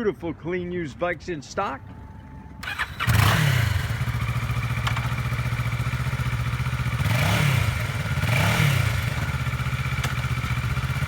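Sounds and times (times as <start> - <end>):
motorcycle engine starting and idling: 2.6 - 11.0
motorcycle throttle blips: 2.6 - 11.0.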